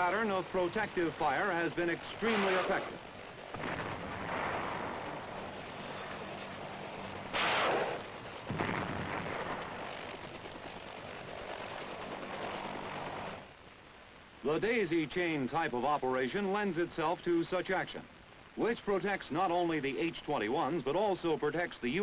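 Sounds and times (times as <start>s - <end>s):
helicopter engine drone: 0.0s - 13.5s
loud blasts: 1.9s - 10.2s
rattle of gunfire: 7.3s - 12.4s.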